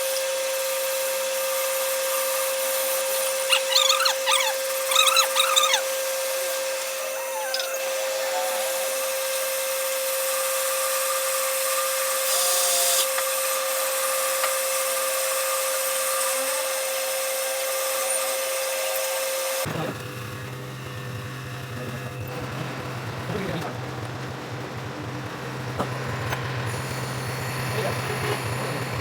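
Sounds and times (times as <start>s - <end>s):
power tool whining: 1.2s - 23.0s.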